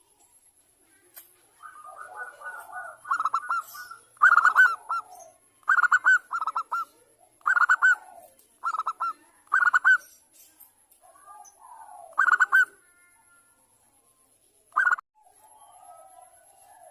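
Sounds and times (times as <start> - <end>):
dove cooing: 1.5 - 10.1, 11.1 - 13.2.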